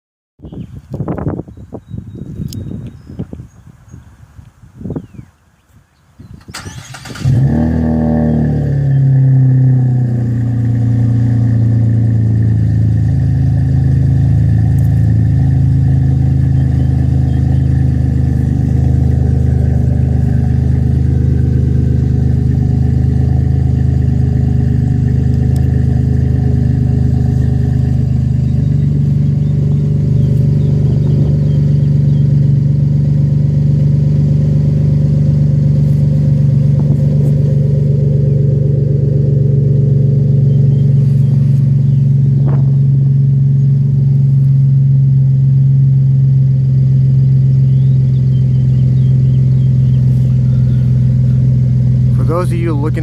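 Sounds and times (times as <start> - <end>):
car engine idling: 6.5 - 53.0
deep exhaust drone: 7.1 - 53.0.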